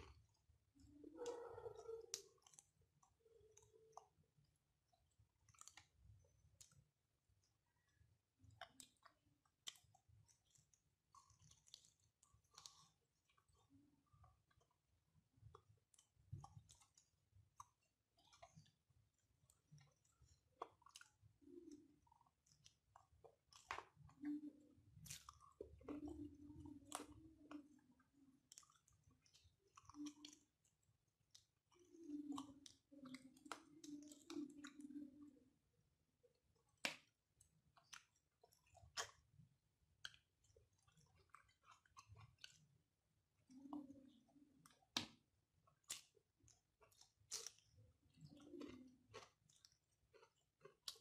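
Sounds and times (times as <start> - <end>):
chewing rice: 0.0 - 51.0
wet mouth clicks and smacks: 1.1 - 4.2, 4.9 - 6.8, 8.5 - 14.8, 19.4 - 35.4, 36.6 - 39.4, 40.0 - 42.6, 43.5 - 51.0.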